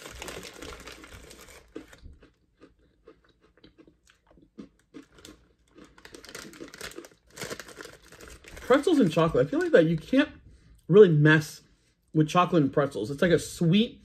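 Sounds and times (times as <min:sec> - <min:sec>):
chewing crunchy pretzels: 0:00.0 - 0:09.6.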